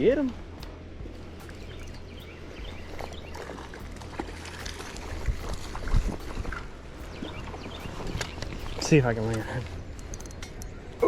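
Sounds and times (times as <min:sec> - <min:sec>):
wind rumbling on microphone: 0:00.0 - 0:11.0
stream water flowing: 0:00.4 - 0:11.0
small clicks and splashes: 0:02.9 - 0:10.8.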